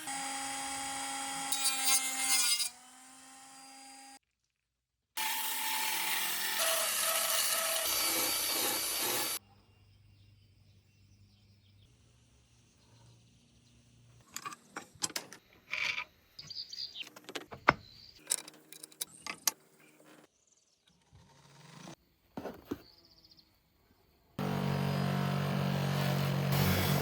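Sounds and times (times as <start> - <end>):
power tool grinding: 5.2 - 9.4, 24.4 - 27.0
small parts clicking and knocking: 18.2 - 19.6.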